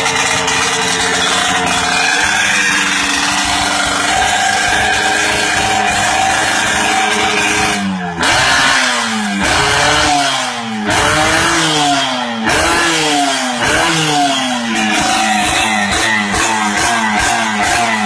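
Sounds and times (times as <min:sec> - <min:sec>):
two-stroke motorcycle engine revving: 0:00.0 - 0:18.0.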